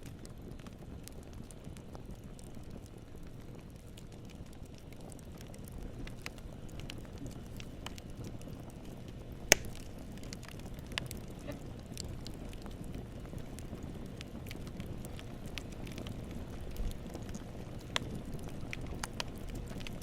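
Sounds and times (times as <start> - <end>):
wood fire crackling: 0.0 - 20.0
loud sharp pop: 9.5 - 9.9.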